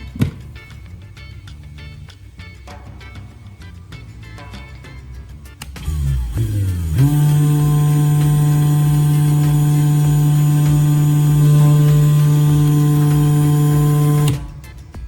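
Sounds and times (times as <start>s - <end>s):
electric motor humming: 5.8s - 14.6s.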